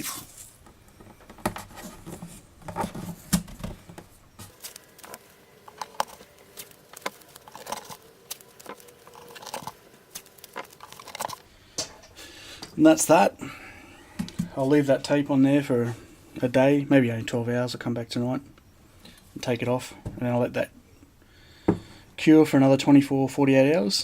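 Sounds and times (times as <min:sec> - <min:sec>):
handling rustles: 0:00.0 - 0:12.8.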